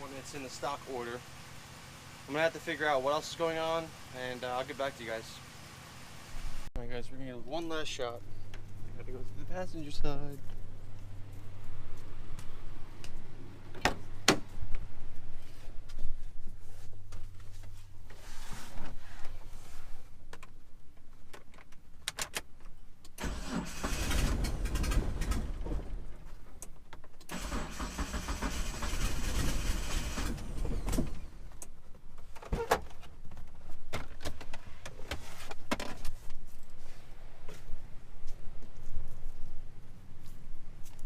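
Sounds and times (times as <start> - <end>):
engine cranking on starter: 23.2 - 25.8, 27.3 - 31.4.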